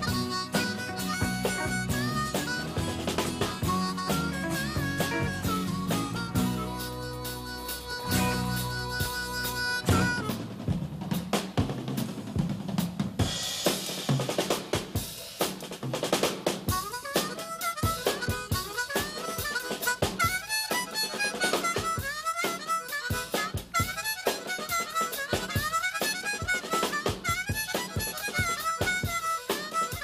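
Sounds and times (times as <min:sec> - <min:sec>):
harmonica playing: 0:00.0 - 0:10.4, 0:16.7 - 0:30.0
drum kit beat: 0:00.0 - 0:30.0.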